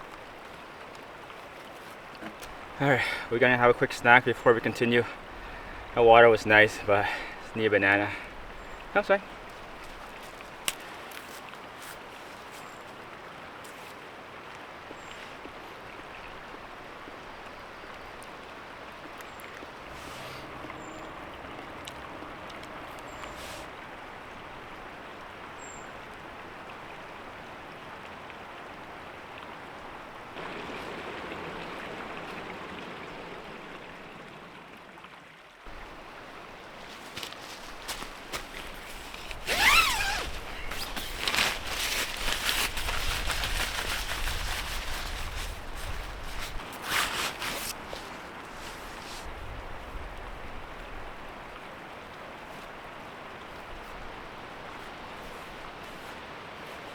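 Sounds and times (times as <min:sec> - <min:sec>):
creek flowing: 0:00.0 - 0:56.9
gear rustling and knocking: 0:36.8 - 0:48.2.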